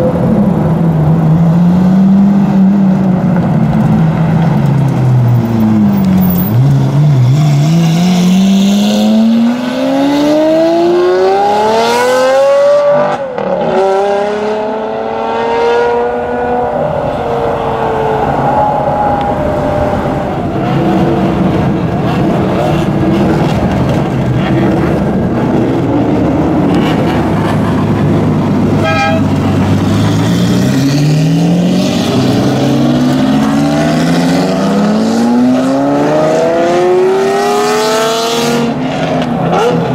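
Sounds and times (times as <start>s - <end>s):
low rumble of engines: 0.0s - 9.6s, 16.0s - 37.2s.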